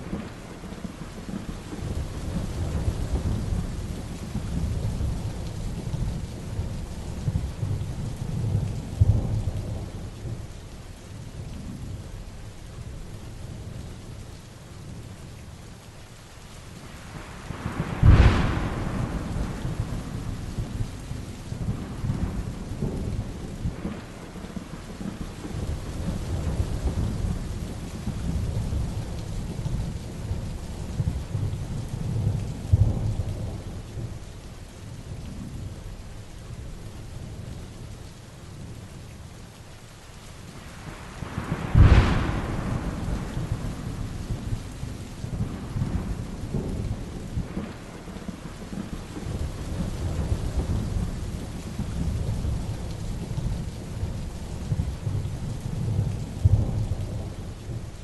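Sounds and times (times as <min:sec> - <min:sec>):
rolling thunder: 0:00.0 - 0:10.5, 0:17.0 - 0:34.2, 0:40.7 - 0:58.0
heavy rain: 0:00.0 - 0:58.0
sharp thunderclap: 0:17.5 - 0:30.0, 0:40.9 - 0:52.9.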